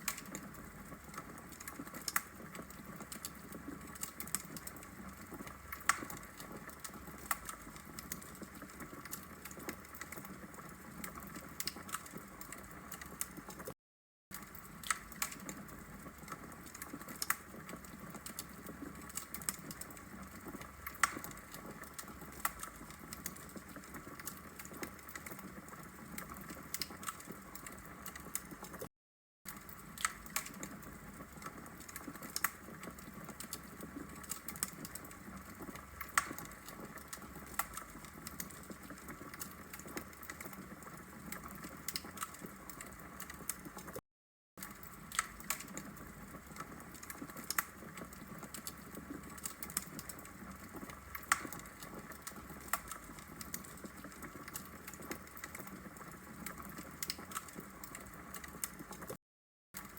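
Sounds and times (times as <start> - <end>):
log fire crackling: 0.0 - 13.7, 14.4 - 28.8, 29.5 - 44.0, 44.6 - 59.0.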